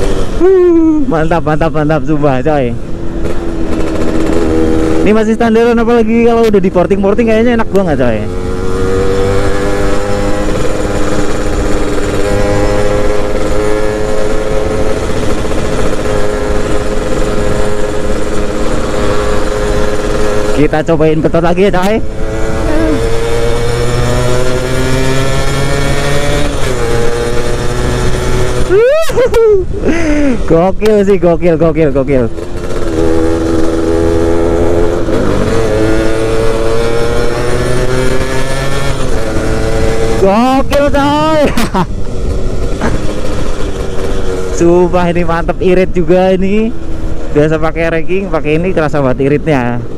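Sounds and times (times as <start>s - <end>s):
two-stroke moped engine running: 7.2s - 28.8s.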